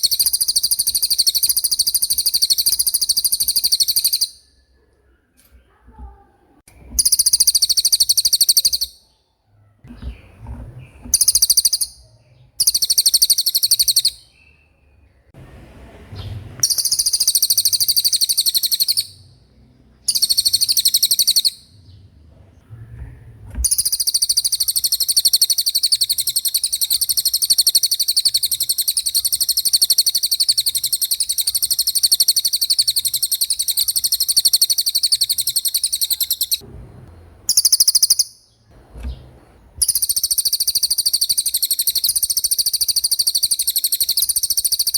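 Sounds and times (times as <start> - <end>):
songbird high-pitched trill: 0.0 - 4.5, 7.0 - 9.2, 11.2 - 15.0, 16.6 - 19.3, 20.0 - 21.8, 23.6 - 36.6, 37.5 - 38.5, 39.8 - 44.9.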